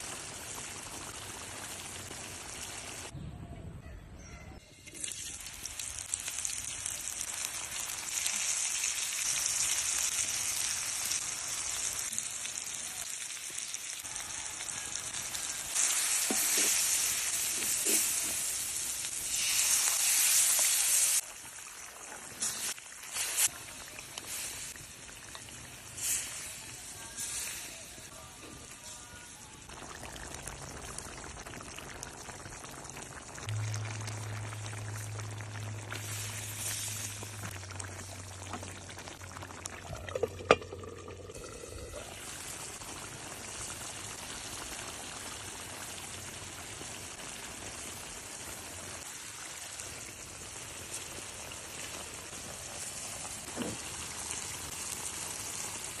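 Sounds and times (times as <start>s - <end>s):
curry sizzling in a pan: 0.0s - 3.1s, 4.8s - 56.0s
low hum: 33.5s - 37.4s.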